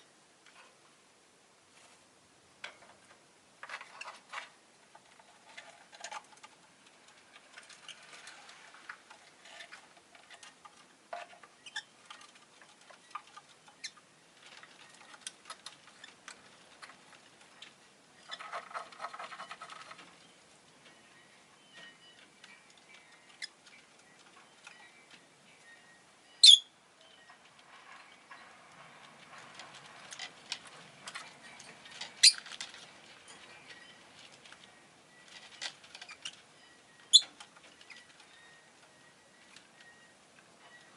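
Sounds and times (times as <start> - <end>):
lovebirds chirping: 11.3 - 14.1, 17.5 - 28.6, 30.7 - 40.9.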